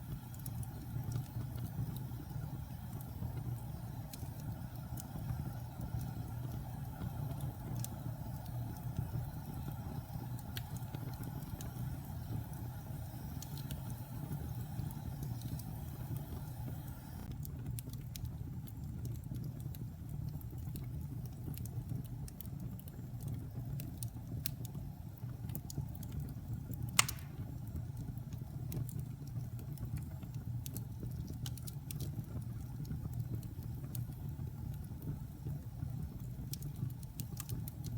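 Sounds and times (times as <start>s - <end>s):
fire crackling: 0.0s - 37.9s
fire rumbling in fireplace: 0.0s - 37.9s
loud sharp pop: 27.0s - 27.5s.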